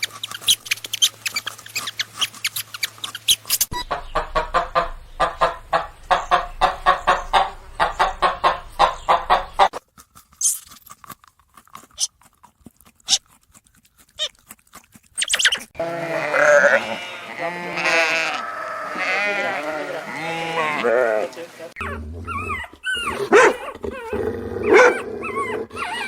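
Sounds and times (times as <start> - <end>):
farm animals bleating: 15.8 - 21.9.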